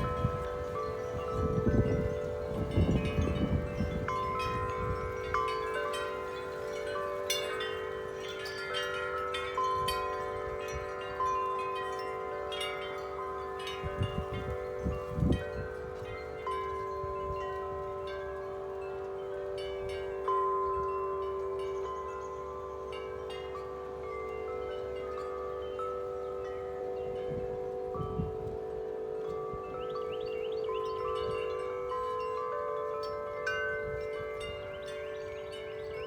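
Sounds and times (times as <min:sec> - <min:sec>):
wind rumbling on microphone: 0:00.0 - 0:12.0, 0:12.6 - 0:18.8, 0:26.6 - 0:36.0
wind chimes ringing: 0:00.0 - 0:36.0.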